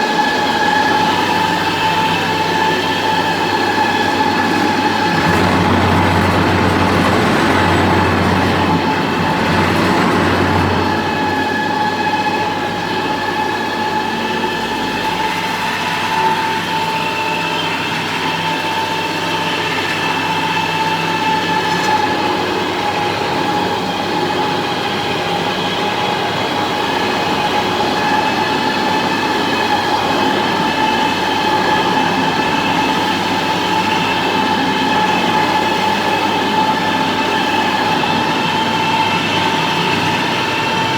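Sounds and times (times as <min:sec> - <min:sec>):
concrete floor grinder grinding: 0:02.2 - 0:12.4.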